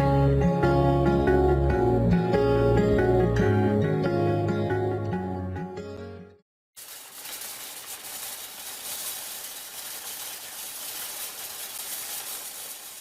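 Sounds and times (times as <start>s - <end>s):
steady hiss: 6.8s - 13.0s.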